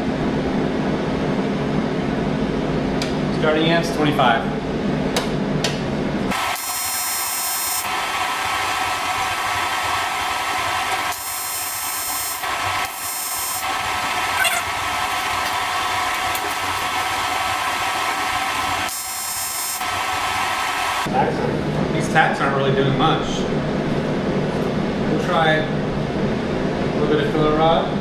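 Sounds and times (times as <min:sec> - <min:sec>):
welding arc buzzing hiss: 0:06.3 - 0:21.1.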